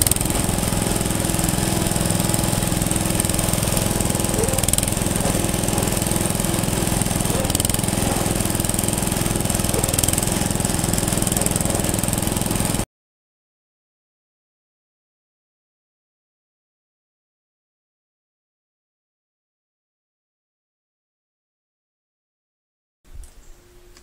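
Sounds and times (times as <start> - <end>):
engine running: 0.0 - 12.8.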